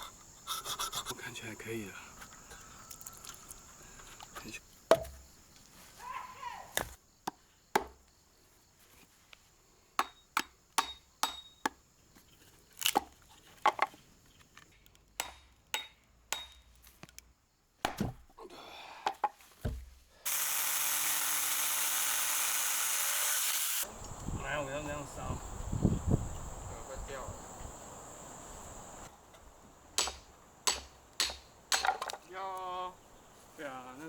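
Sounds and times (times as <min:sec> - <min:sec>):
loud steady hiss: 0:00.0 - 0:04.6, 0:20.3 - 0:34.0
axe chopping wood: 0:04.9 - 0:05.2, 0:06.7 - 0:08.0, 0:10.0 - 0:11.8, 0:15.2 - 0:16.6, 0:17.8 - 0:18.4, 0:30.0 - 0:32.2.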